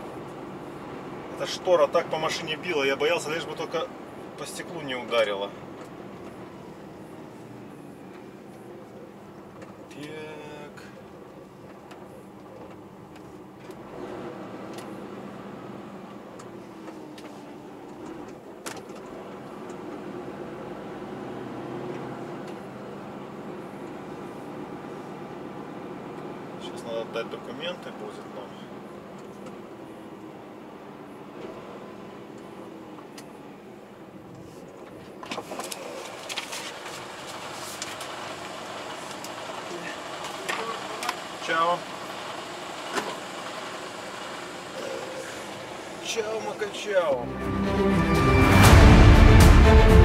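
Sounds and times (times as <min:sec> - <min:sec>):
vehicle engine idling: 0:00.0 - 0:50.0
truck diesel engine running: 0:35.8 - 0:50.0.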